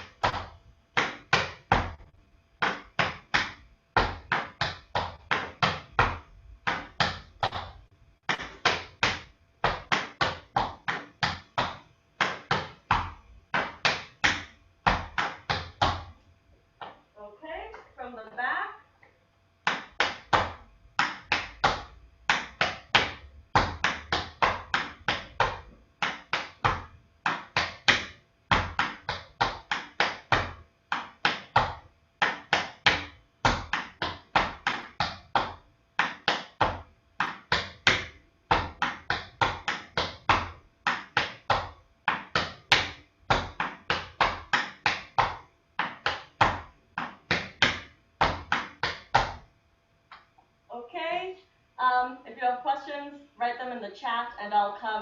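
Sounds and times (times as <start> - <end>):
tap shoes on hard floor: 2.6 - 16.2, 19.7 - 49.4.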